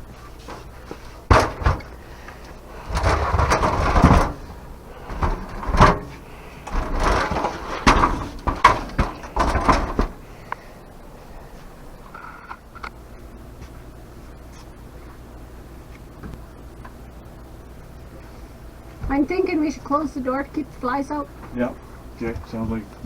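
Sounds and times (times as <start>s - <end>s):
wood scraping and cracking: 0.5s - 10.2s.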